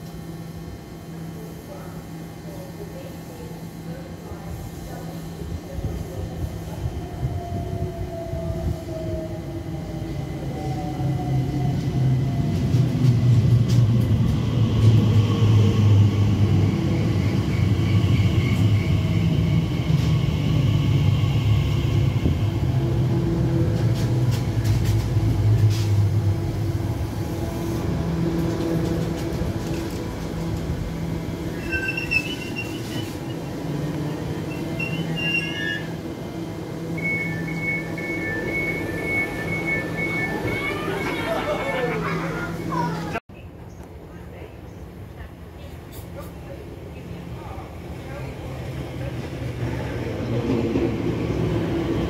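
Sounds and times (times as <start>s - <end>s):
wheels rumbling on rail: 4.3s - 52.0s.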